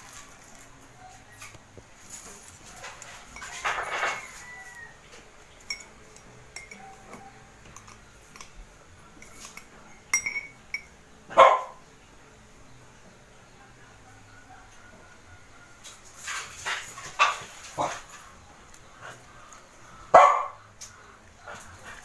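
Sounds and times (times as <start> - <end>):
cutlery clinking on dishes: 2.2 - 10.9
dog barking: 11.3 - 11.8, 20.1 - 20.7.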